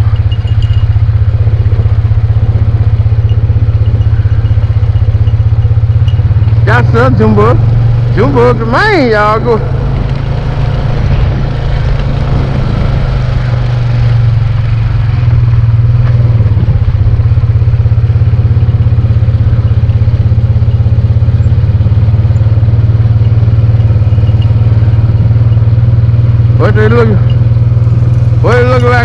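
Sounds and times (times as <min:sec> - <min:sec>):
motorbike engine running: 0:00.0 - 0:29.0.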